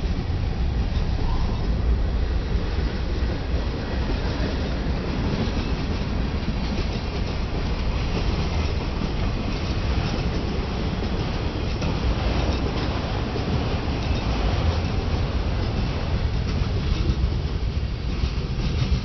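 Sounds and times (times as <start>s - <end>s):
freight train rumbling on rails: 0.0s - 19.0s.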